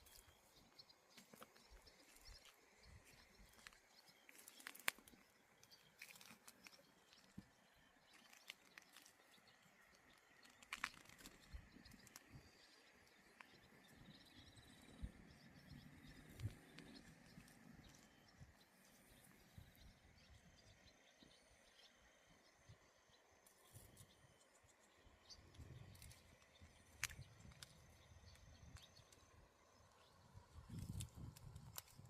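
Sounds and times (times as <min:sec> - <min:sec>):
faint high bird or insect calls: 0:00.0 - 0:32.0
small clicks and crunches: 0:01.1 - 0:14.2, 0:15.7 - 0:18.3, 0:25.5 - 0:29.3, 0:30.6 - 0:32.0.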